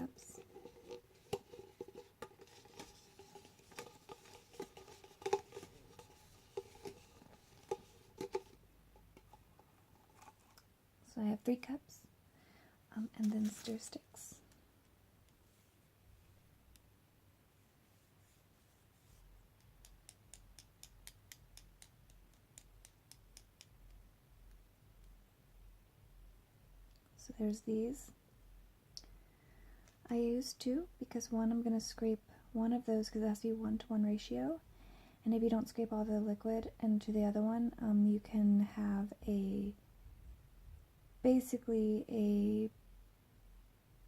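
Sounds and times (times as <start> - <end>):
faint steady hum: 0.0 - 44.0
plastic cups tapping and clicking: 0.4 - 9.6.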